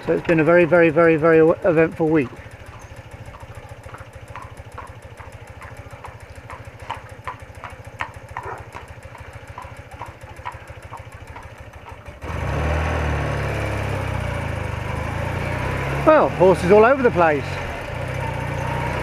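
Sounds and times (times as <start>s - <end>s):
motorcycle engine ticking over: 0.0s - 19.0s.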